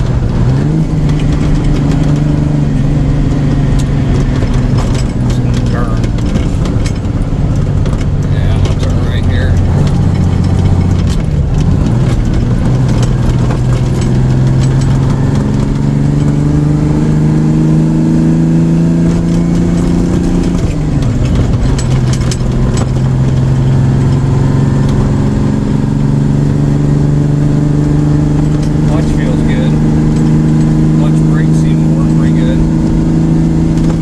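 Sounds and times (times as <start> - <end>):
sharp clicks or rattles: 0.0 - 16.4, 19.0 - 26.0
diesel truck engine under load: 0.0 - 34.0.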